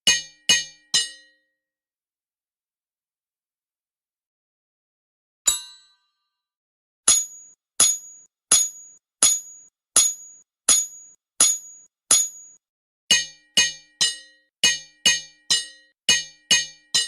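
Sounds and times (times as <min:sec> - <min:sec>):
metallic clinks: 0:07.1 - 0:12.6.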